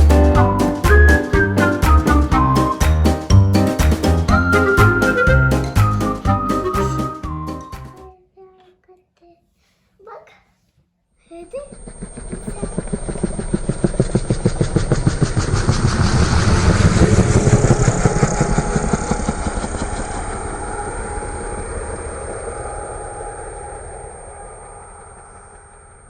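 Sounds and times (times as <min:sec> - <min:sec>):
toy helicopter rotor whirring clicks: 0:11.5 - 0:15.2.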